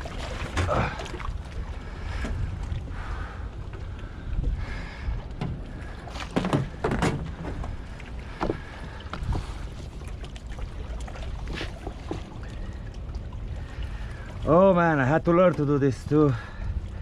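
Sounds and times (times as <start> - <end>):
wind rumbling on microphone: 0.0 - 17.0
knocks and bumps: 5.4 - 9.3.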